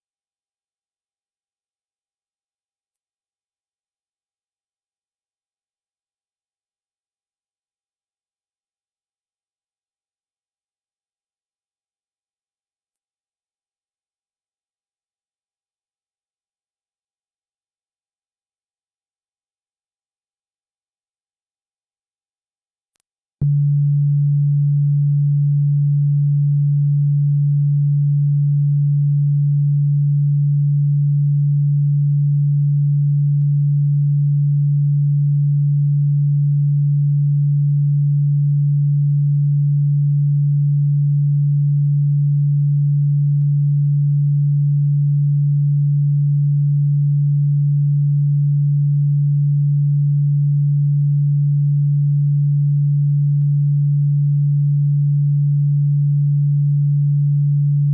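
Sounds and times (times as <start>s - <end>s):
low electronic sine tone: 23.0s - 57.9s.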